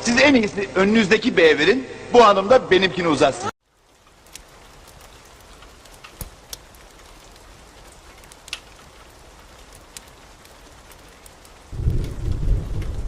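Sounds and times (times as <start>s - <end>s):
rain hiss: 3.6s - 13.0s
low rumble of thunder: 10.6s - 13.0s.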